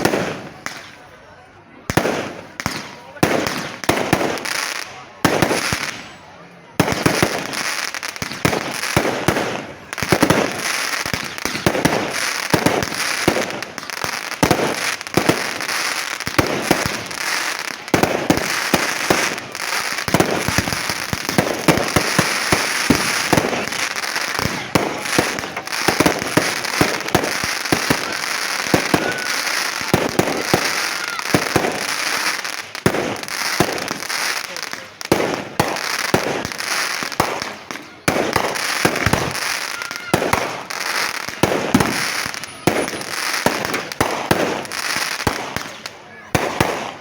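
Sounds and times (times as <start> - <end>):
fireworks bangs and crackling: 0.0 - 47.0.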